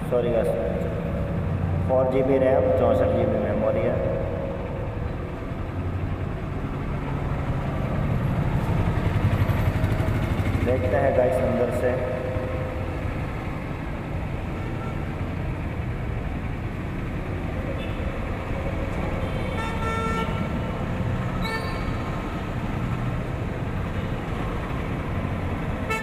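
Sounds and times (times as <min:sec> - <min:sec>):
street traffic rumble: 0:00.0 - 0:26.0
vehicle horns tooting: 0:17.7 - 0:18.2, 0:19.2 - 0:20.7, 0:21.4 - 0:22.1.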